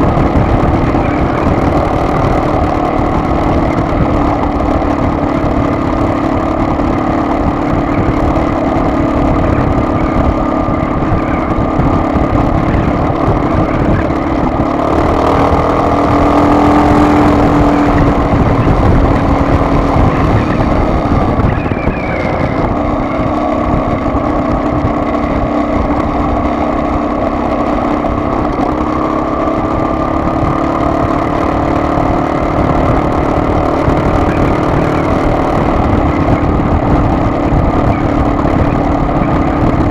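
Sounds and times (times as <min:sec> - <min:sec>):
car engine: 0:00.0 - 0:39.9
road noise: 0:00.0 - 0:39.9.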